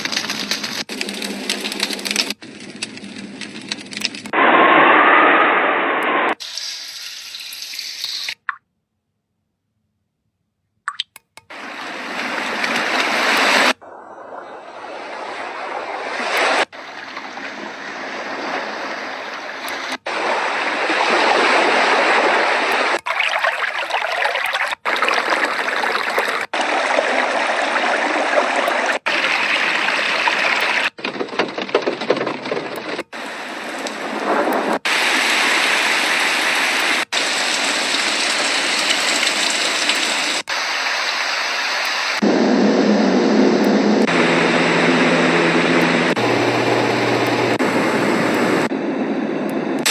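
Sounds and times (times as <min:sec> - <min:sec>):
white noise machine rushing water: 0:11.5 - 0:31.0, 0:32.6 - 0:49.9.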